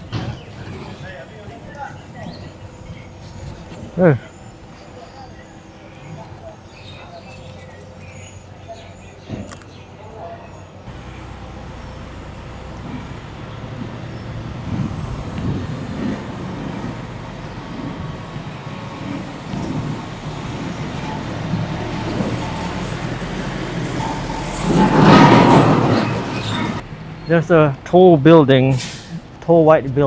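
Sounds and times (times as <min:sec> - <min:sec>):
motor vehicle passing: 0:10.8 - 0:27.2.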